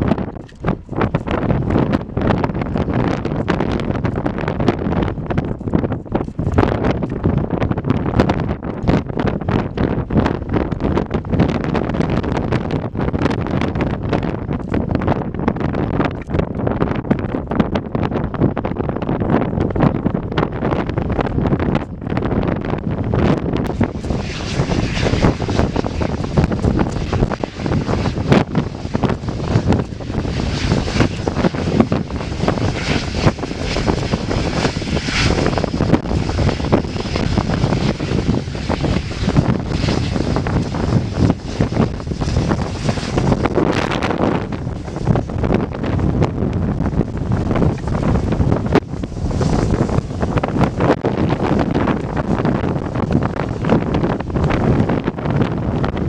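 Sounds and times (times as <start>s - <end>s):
wind buffeting microphone: 0.0s - 56.0s
airliner engines passing: 22.7s - 56.0s.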